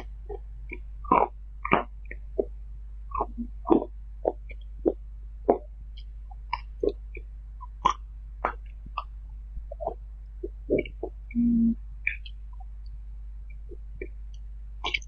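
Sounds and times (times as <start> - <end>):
steady low hum: 0.0 - 15.0
person chewing and smacking food: 13.7 - 15.0.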